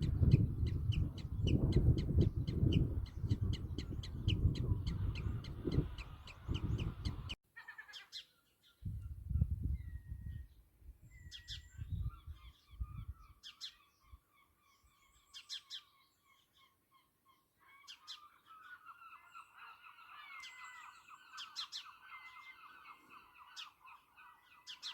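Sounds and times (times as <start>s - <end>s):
wind rumble on microphone: 0.0s - 7.4s, 8.8s - 13.4s
birds alarm calls: 0.0s - 8.2s
bird trill: 0.0s - 8.4s.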